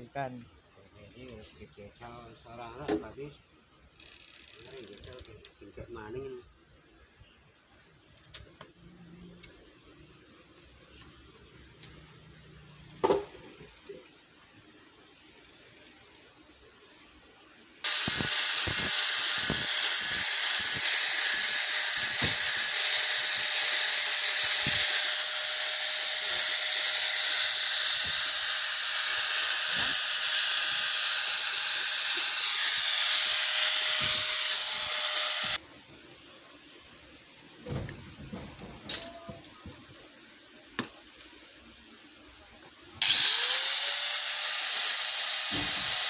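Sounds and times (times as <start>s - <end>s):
power tool whining: 17.8s - 35.6s, 43.0s - 46.0s.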